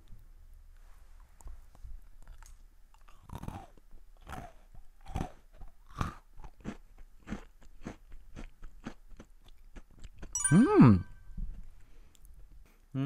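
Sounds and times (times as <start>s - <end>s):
soft chewing: 1.0s - 10.3s, 11.5s - 12.9s
crunching cookie: 2.2s - 10.3s.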